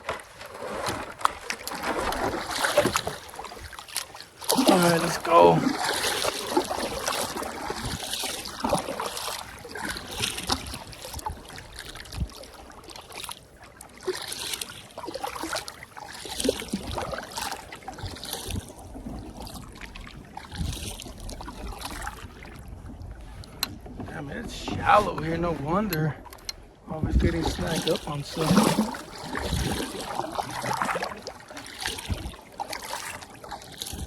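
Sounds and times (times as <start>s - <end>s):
paddle splashing into water: 0.0s - 34.0s
water trickling: 1.5s - 10.5s.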